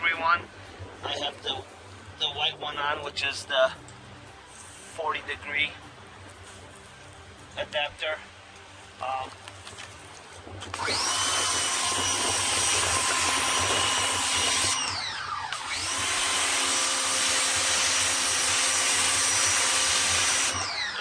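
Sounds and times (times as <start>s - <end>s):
pressure washer motor and pump: 10.6s - 21.0s.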